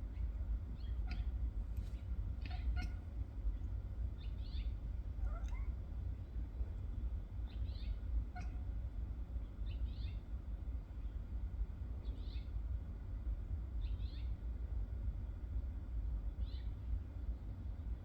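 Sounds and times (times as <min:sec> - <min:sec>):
steady low rumble: 0:00.0 - 0:18.0
cat chirping meows: 0:02.4 - 0:03.1, 0:04.4 - 0:05.8, 0:07.7 - 0:08.6.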